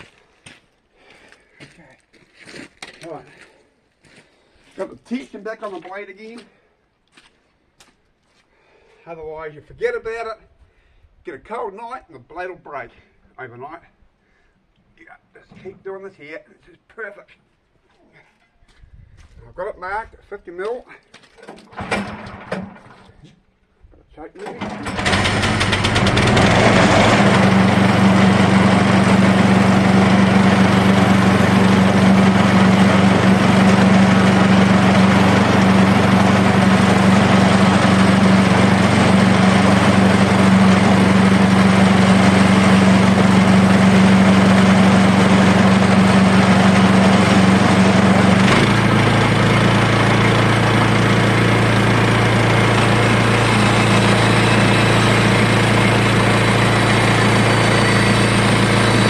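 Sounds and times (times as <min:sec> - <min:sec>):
small petrol engine running: 0:21.7 - 0:22.9, 0:24.6 - 0:59.0.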